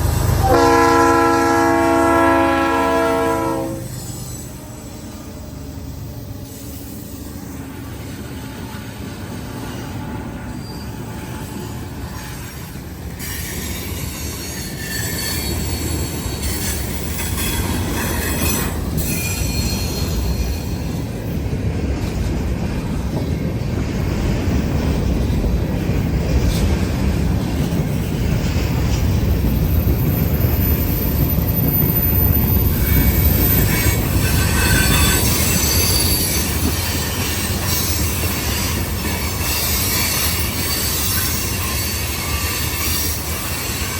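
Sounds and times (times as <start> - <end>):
freight cars rumbling on rails: 0.0 - 43.9
high-pitched wheel squeal: 10.5 - 11.2, 13.2 - 20.9, 29.6 - 43.9.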